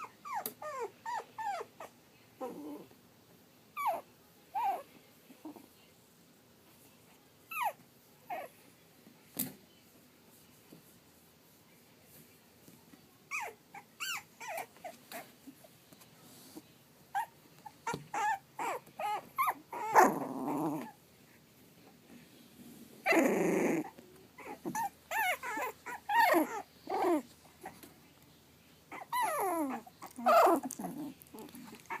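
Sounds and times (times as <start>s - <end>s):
puppy whimpering: 0.0s - 2.9s, 3.8s - 5.6s, 7.5s - 8.5s, 13.3s - 15.2s, 17.1s - 21.0s, 23.0s - 27.8s, 28.9s - 32.0s.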